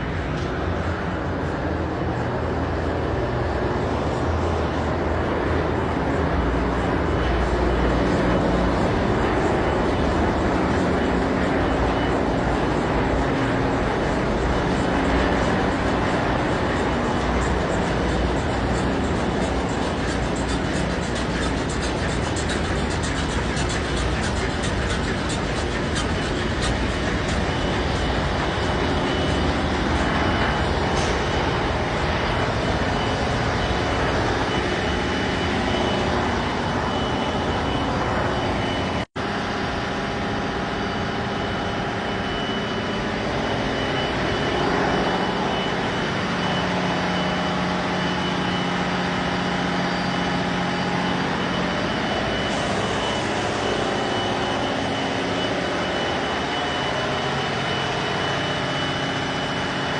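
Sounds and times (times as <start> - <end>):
engine-room machinery din: 0.0 - 59.9
thin high whine: 0.0 - 59.9.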